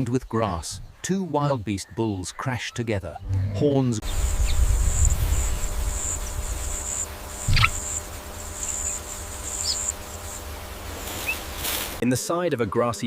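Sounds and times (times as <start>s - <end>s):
low rumble: 3.2s - 6.8s
insects chirring: 4.0s - 12.0s.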